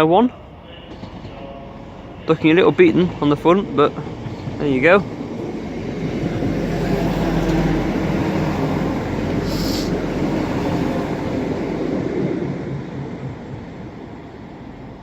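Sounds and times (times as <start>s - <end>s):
train diesel engines droning: 0.0s - 15.0s
air hiss: 9.3s - 10.5s.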